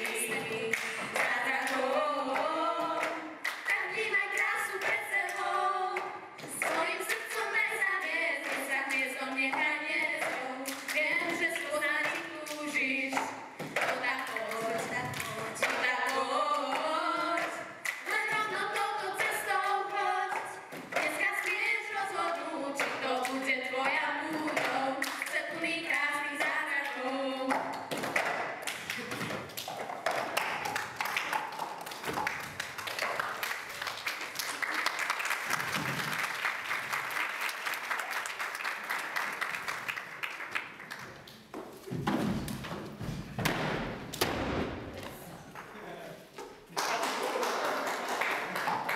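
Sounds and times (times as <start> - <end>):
song sung on stage: 0.0 - 27.7
audience applauding: 28.7 - 41.5, 46.7 - 48.9.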